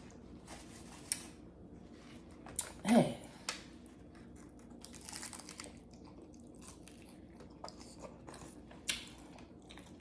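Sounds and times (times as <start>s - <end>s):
person chewing: 4.0s - 10.0s.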